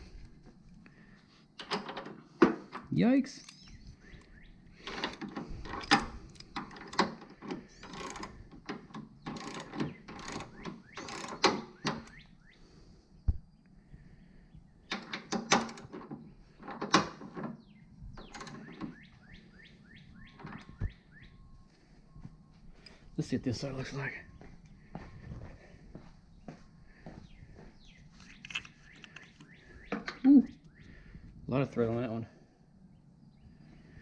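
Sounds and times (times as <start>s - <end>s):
ratchet wrench clicking: 7.9s - 8.3s, 9.3s - 12.1s.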